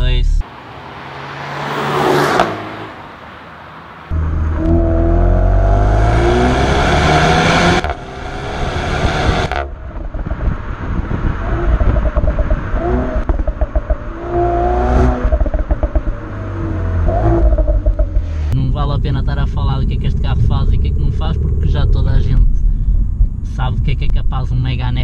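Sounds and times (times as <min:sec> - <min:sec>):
car engine accelerating hard: 0:00.6 - 0:03.1, 0:04.1 - 0:22.4
engine uneven pulsing rumble: 0:07.7 - 0:25.0.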